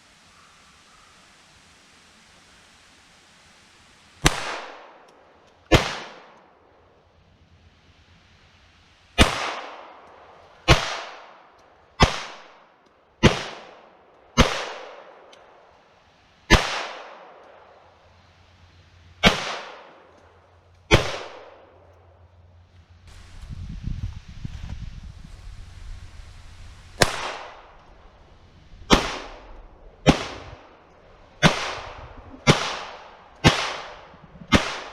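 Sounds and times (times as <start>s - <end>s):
pistol shots echoing: 4.2s - 5.0s, 5.7s - 6.4s, 9.2s - 10.0s, 19.2s - 20.0s, 27.0s - 27.8s, 28.9s - 30.6s, 31.4s - 34.9s.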